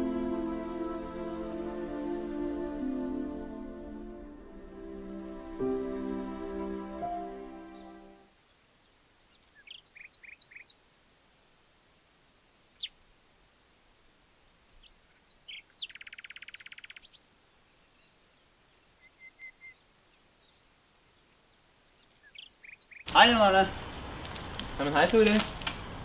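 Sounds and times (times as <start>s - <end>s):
faint steady hiss: 0.0s - 26.0s
small birds chirping: 7.6s - 10.9s, 12.0s - 13.1s, 14.7s - 25.4s
bird trill: 9.1s - 10.8s, 15.3s - 17.2s, 21.9s - 23.1s.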